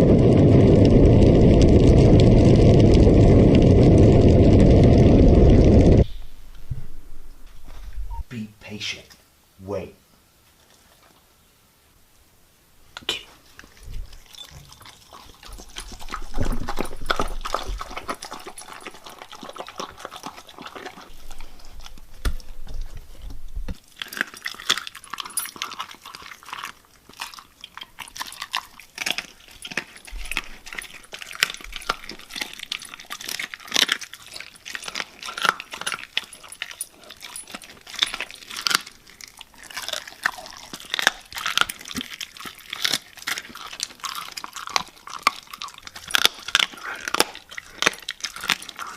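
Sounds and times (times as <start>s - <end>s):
sharp clicks and crunches: 0.0s - 6.6s, 13.0s - 48.9s
dog: 13.6s - 23.5s, 25.1s - 48.9s.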